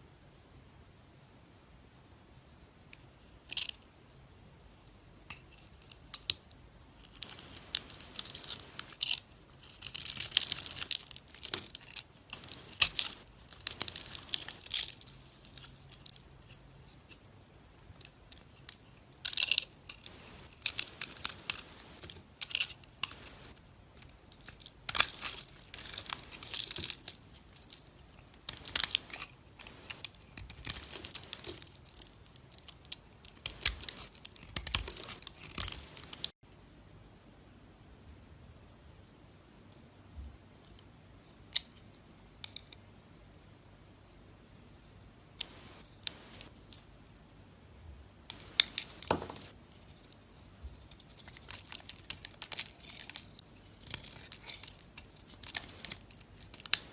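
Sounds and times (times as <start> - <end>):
knife scraping dry soap: 7.1 - 17.2.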